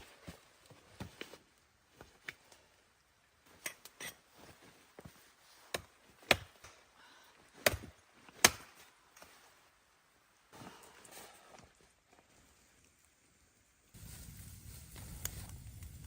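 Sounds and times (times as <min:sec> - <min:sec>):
chopping strikes on wood: 0:05.7 - 0:06.7, 0:07.6 - 0:08.7.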